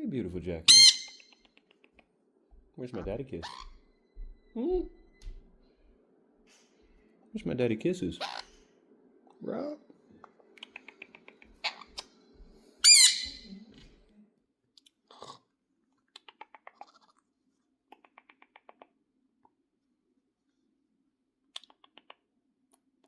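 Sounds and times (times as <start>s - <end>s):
parrot squawk: 0.6s - 1.4s, 3.4s - 3.8s, 8.2s - 8.6s, 10.7s - 12.1s, 12.8s - 13.5s
parrot beak crunching and clicking: 16.1s - 17.1s, 17.9s - 18.9s, 21.5s - 22.2s.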